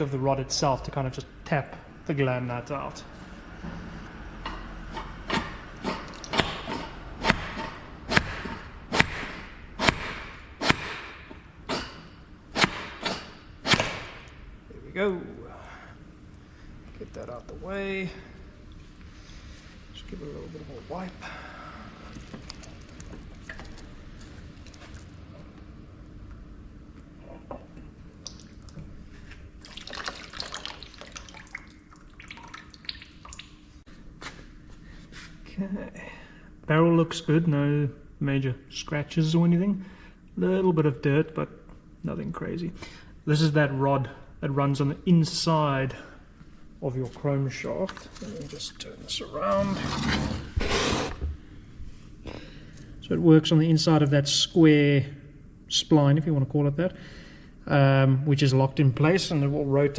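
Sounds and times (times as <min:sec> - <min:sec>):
small scrapes: 0:49.6 - 0:51.3.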